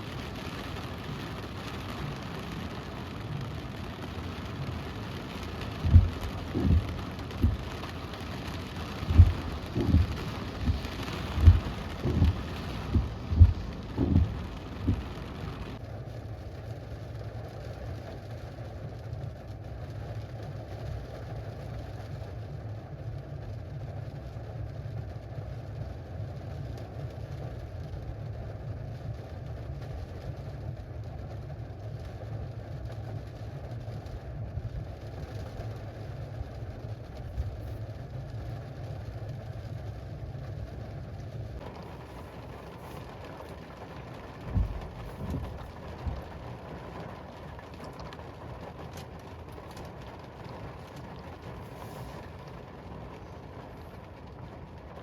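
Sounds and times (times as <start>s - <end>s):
heavy rain: 0.0s - 55.0s
car engine idling: 4.3s - 15.8s, 40.7s - 54.6s
loud low thumps: 5.8s - 7.7s, 9.1s - 15.5s, 44.5s - 46.2s.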